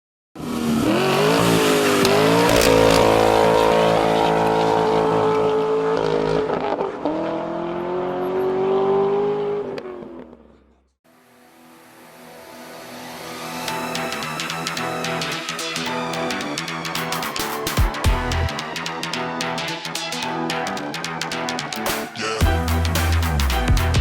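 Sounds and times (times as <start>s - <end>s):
car engine revving hard: 0.4s - 10.2s.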